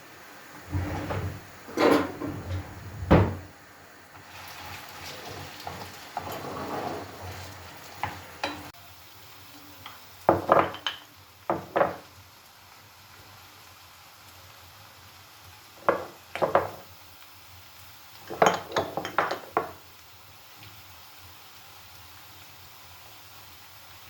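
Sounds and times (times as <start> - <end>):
light sizzle: 0.0 - 24.0
utensil scraping food in pan: 0.7 - 2.5, 4.4 - 8.7
utensil clacking against pan: 18.3 - 19.8.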